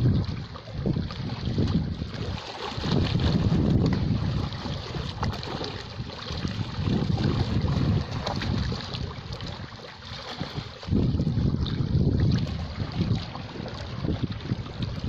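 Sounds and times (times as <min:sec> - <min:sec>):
sea waves washing in: 0:00.0 - 0:15.0
wind rumbling on microphone: 0:00.0 - 0:15.0.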